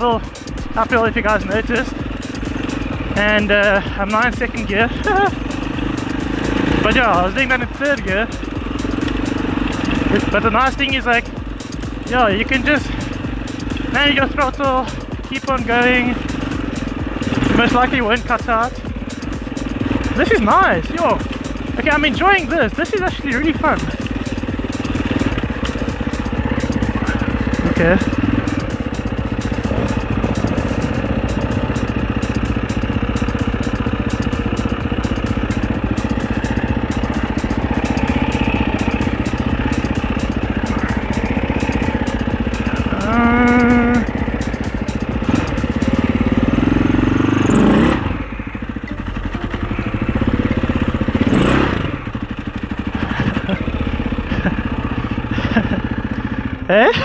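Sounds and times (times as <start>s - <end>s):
rapid clatter over rocks: 0.0s - 49.4s, 50.0s - 57.0s
dirt bike engine revving: 0.0s - 57.0s.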